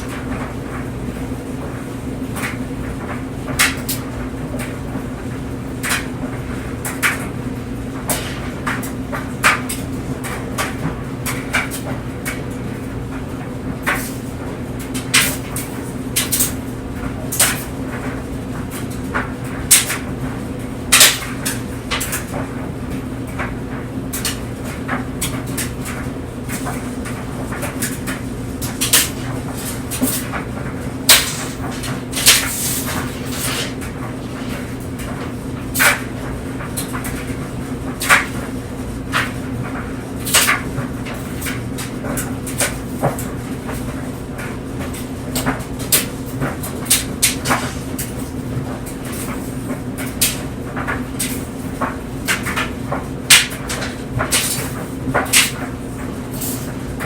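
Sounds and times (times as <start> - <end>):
tumble dryer hum: 6.5 - 40.1.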